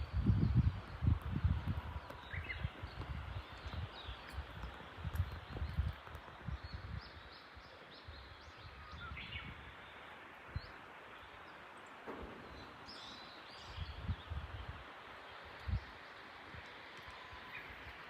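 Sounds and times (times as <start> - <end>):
small birds chirping: 0.0 - 18.0
low thuds: 12.0 - 14.5.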